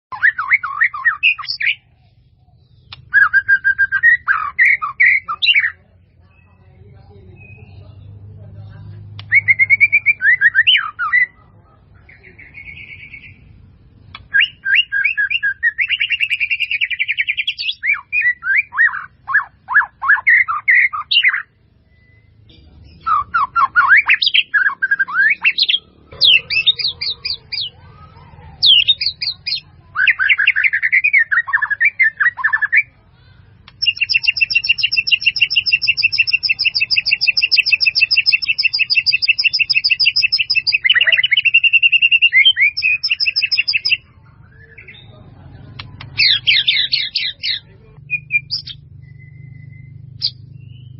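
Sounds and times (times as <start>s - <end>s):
bird singing with trills: 0.1s - 50.9s.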